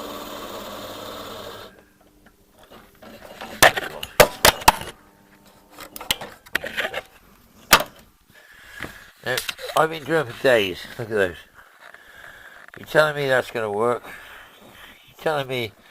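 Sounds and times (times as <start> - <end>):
electric drill running: 0.0 - 1.8
metal tools clicking and knocking: 5.8 - 7.1.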